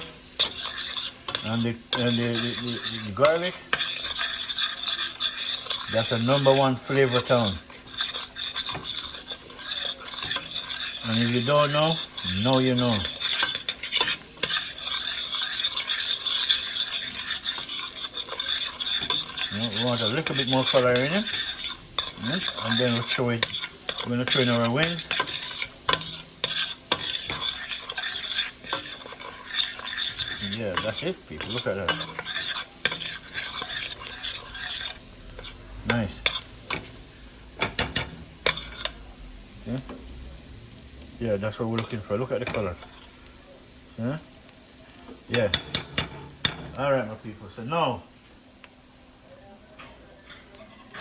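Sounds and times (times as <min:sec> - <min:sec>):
food sizzling in butter: 0:00.0 - 0:51.0.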